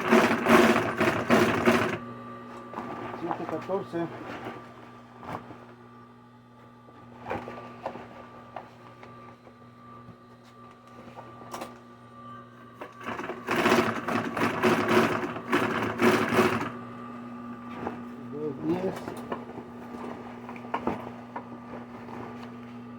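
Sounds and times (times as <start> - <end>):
sewing machine stitching: 0.0 - 2.0, 13.0 - 16.8
sewing machine clicks: 13.0 - 16.7.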